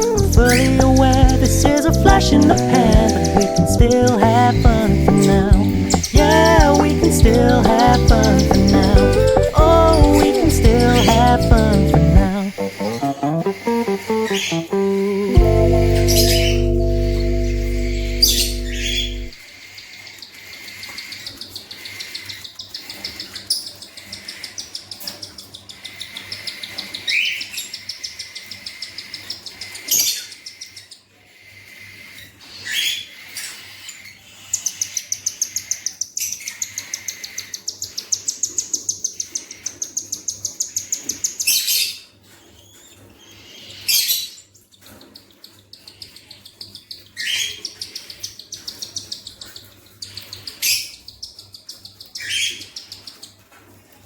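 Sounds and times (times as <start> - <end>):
budgerigar chicks begging calls: 0.0 - 41.7.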